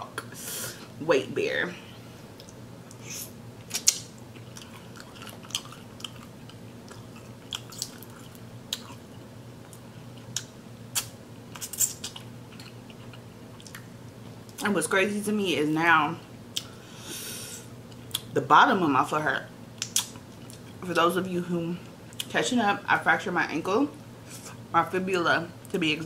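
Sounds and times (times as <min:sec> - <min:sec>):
person chewing: 0:02.4 - 0:13.9
mouth clicks and smacks: 0:19.8 - 0:20.6.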